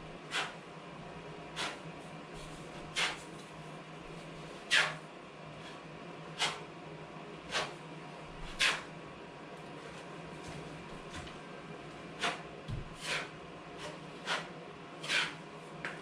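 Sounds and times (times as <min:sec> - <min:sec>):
faint steady hum: 0:00.0 - 0:16.0
hand tool scraping wall: 0:00.2 - 0:00.6, 0:01.5 - 0:01.8, 0:02.4 - 0:03.3, 0:04.3 - 0:05.0, 0:06.4 - 0:06.6, 0:07.5 - 0:07.8, 0:08.4 - 0:08.9, 0:12.1 - 0:15.4.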